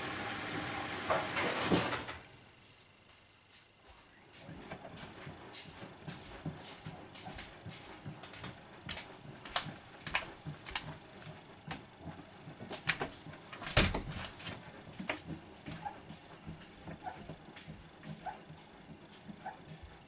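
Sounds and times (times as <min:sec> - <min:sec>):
washing machine drum turning: 0:00.0 - 0:02.3.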